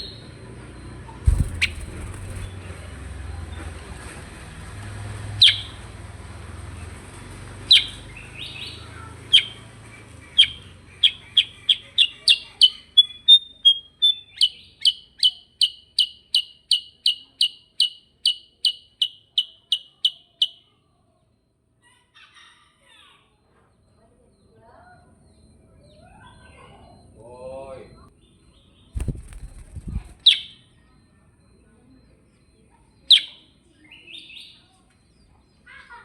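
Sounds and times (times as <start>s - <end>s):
songbird chirping: 1.3s - 2.6s, 22.9s - 35.7s.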